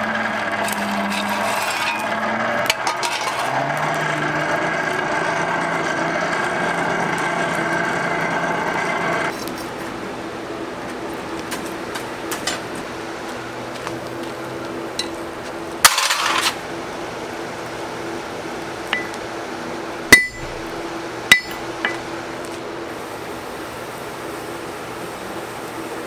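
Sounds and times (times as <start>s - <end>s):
steady low hum: 0.0s - 23.8s
metal parts tapped and clinking: 0.6s - 3.6s, 21.3s - 22.0s.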